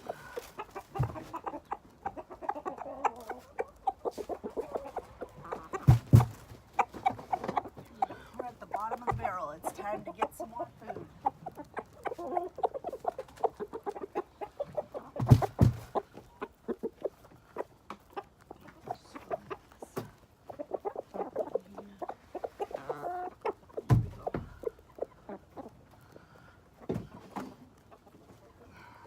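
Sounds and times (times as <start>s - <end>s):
chickens clucking: 0.0s - 29.0s
loud thumps: 5.9s - 6.4s.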